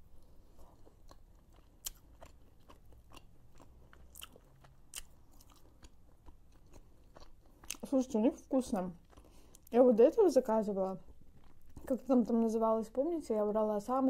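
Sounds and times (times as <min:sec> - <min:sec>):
person chewing: 0:00.0 - 0:08.0, 0:09.0 - 0:09.8, 0:11.0 - 0:12.0.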